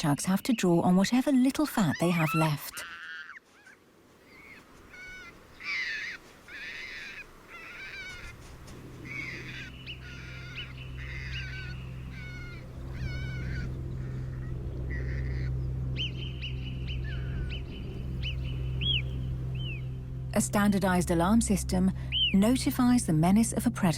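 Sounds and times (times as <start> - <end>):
low droning background music: 7.8 - 23.9
marmot alarm calls: 9.1 - 14.3, 18.2 - 19.8, 22.1 - 22.4.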